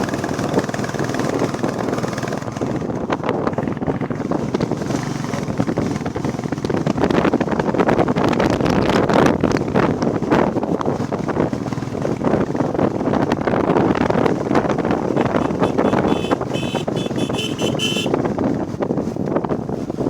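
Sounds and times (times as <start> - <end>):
motorcycle running: 0.0 - 20.0
wind rush: 0.0 - 20.0
horn short toots: 15.1 - 18.2.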